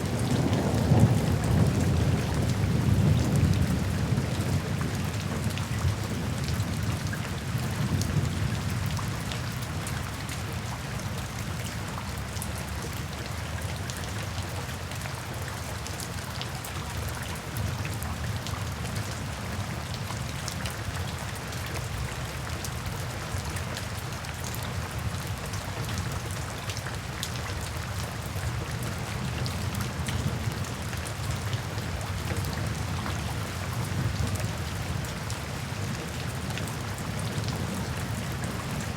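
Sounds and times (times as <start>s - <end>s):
low rumble of thunder: 0.0s - 10.0s, 28.5s - 38.9s
steady rain: 0.0s - 38.9s.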